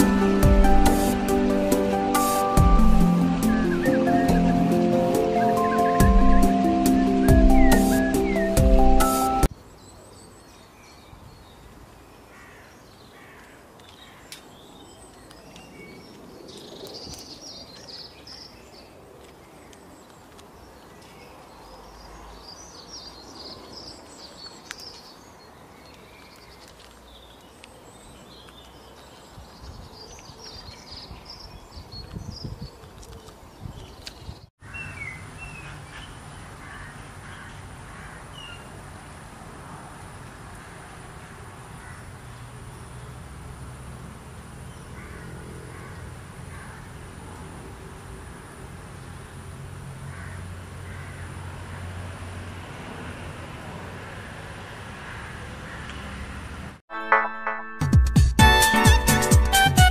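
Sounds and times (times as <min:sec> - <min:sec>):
small birds chirping: 0:03.2 - 0:38.7.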